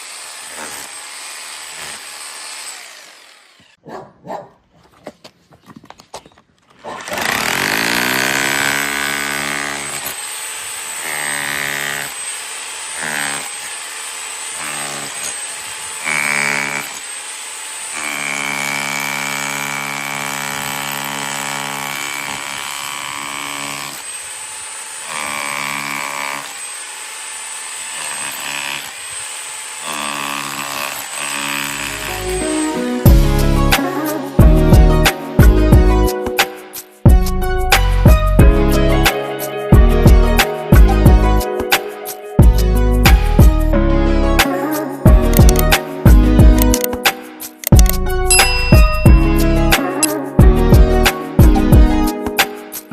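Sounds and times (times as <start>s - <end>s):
hammer drill motor whining: 0.0s - 3.8s, 6.7s - 32.8s.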